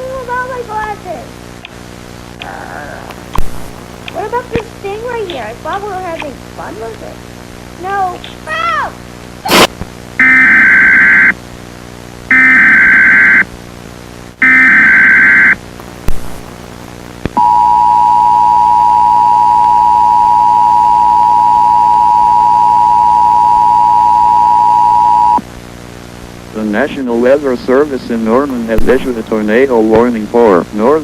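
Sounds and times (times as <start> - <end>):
two-tone attention signal: 10.2 - 11.3, 12.3 - 13.4, 14.4 - 15.6, 17.4 - 25.4
screeching digital data bursts: 10.2 - 11.4, 12.3 - 13.5, 14.4 - 15.6.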